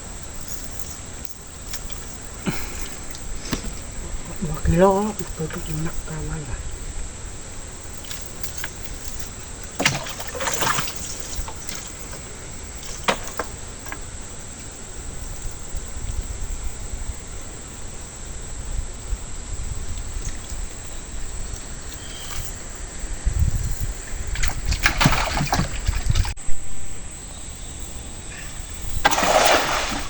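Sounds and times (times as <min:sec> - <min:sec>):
steady hiss: 0:00.0 - 0:24.4
water trickling and splashing: 0:01.5 - 0:06.2, 0:07.9 - 0:13.6, 0:23.6 - 0:26.4, 0:29.0 - 0:30.0
sharp splashes or knocks: 0:09.7 - 0:13.6, 0:24.3 - 0:26.4, 0:29.0 - 0:30.0.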